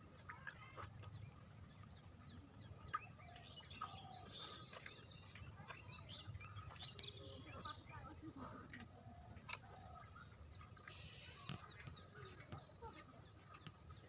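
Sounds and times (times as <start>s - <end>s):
birds chirping: 0.0s - 14.0s
lower bird calls: 0.1s - 8.0s, 9.5s - 14.0s.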